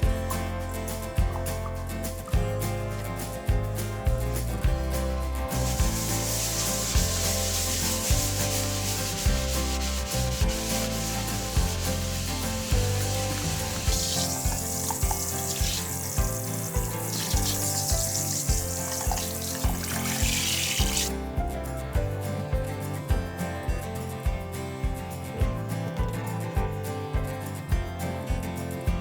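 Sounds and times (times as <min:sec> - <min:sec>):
background music with beat: 0:00.0 - 0:29.0
rubbing noise: 0:04.3 - 0:21.1.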